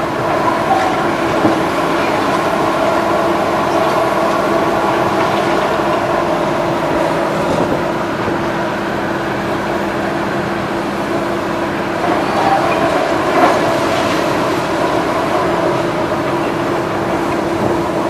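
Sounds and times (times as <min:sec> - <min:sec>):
heavy machinery engine whining: 0:00.0 - 0:18.0.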